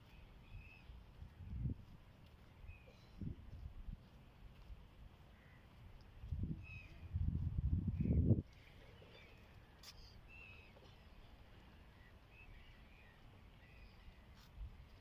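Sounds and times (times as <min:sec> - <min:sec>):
faint bird chirps: 0:07.9 - 0:14.5.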